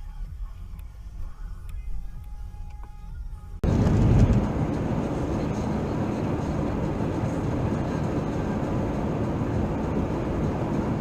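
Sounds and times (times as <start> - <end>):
car engine and road rumble: 0.0 - 11.0
faint music: 0.0 - 11.0.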